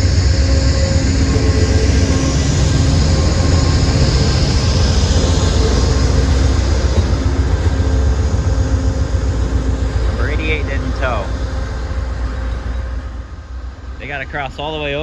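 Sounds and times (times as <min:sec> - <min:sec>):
diesel train passing: 0:00.0 - 0:15.0.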